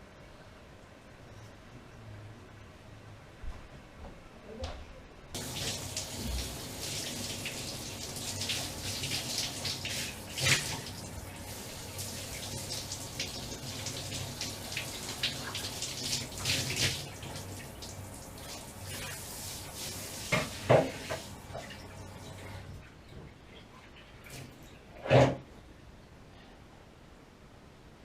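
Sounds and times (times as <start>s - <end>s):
water running and splashing: 5.4s - 22.8s.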